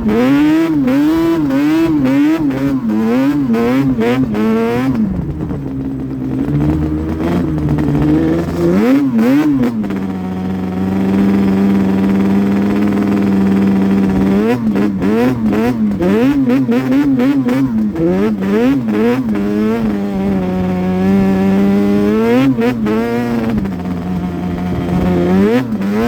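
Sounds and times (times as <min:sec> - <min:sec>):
two-stroke engine revving: 0:00.0 - 0:26.0.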